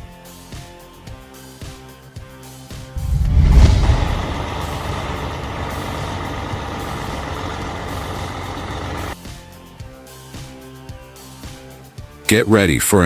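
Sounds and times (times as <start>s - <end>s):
heavy machinery running: 3.0s - 9.2s.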